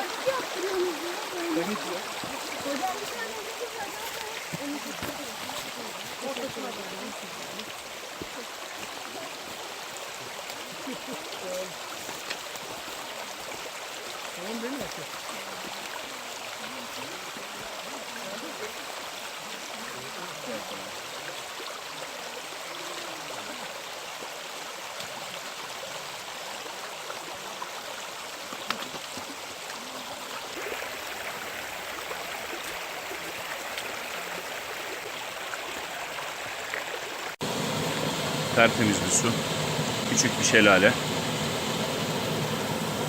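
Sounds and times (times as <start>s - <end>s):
creek running over rocks: 0.0s - 43.0s
faint voices: 37.5s - 43.0s.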